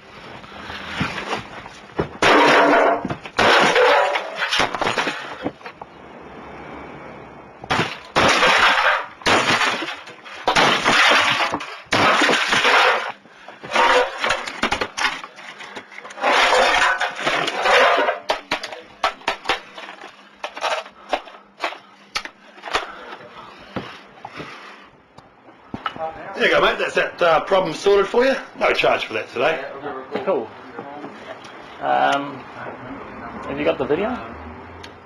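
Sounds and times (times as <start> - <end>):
clattering knocks and cracks: 1.0 - 5.9, 7.6 - 23.0
loud breaking crashes: 2.0 - 5.7, 7.6 - 21.8.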